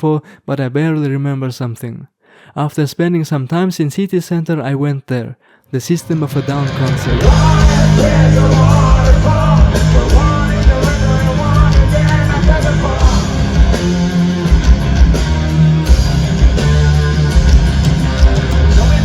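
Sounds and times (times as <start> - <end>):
heavy rock music with singing: 6.1 - 19.0.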